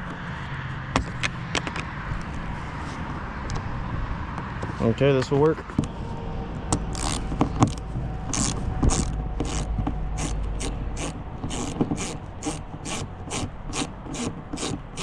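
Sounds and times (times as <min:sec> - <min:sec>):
ratchet wrench clicking: 0:06.8 - 0:15.0.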